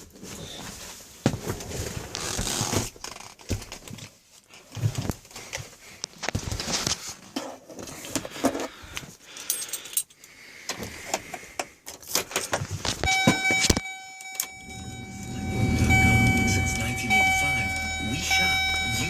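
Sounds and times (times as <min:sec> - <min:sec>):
dashboard warning buzzer: 0:13.1 - 0:19.0.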